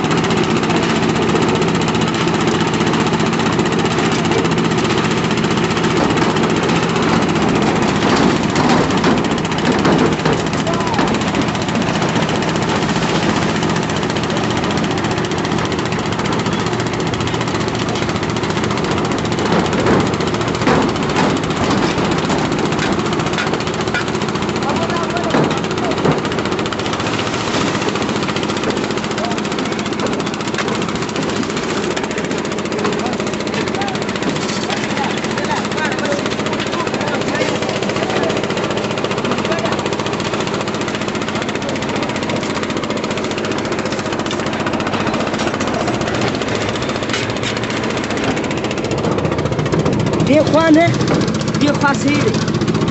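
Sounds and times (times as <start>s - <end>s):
machinery engine rattling: 0.0s - 52.9s
concrete scraping: 43.8s - 48.4s.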